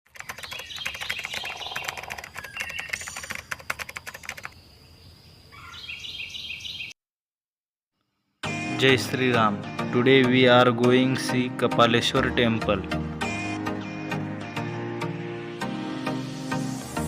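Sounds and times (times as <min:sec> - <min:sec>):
rapid sharp clicks: 0:00.1 - 0:04.6
birds chirping and chattering: 0:00.1 - 0:07.0.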